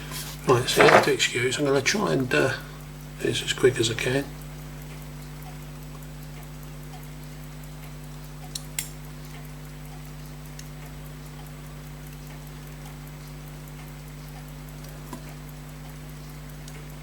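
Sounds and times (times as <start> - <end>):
electrical hum: 0.0 - 17.0
faint regular ticking: 0.0 - 17.0
small metallic clicks: 7.8 - 10.9.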